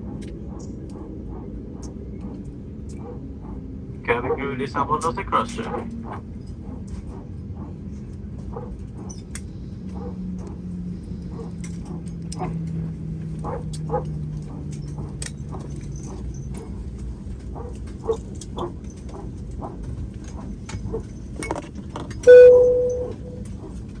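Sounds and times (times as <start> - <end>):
airliner cabin noise: 0.0 - 24.0
loud ringing tone: 22.3 - 23.4
low hum dropping in pitch: 22.3 - 23.4.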